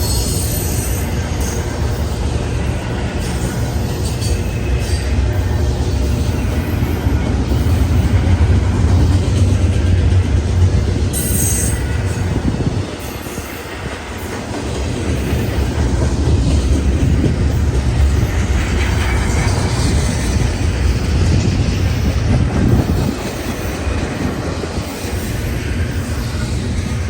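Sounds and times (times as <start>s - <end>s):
freight train rumbling on rails: 0.0s - 27.0s
high wheel squeal: 11.1s - 12.4s.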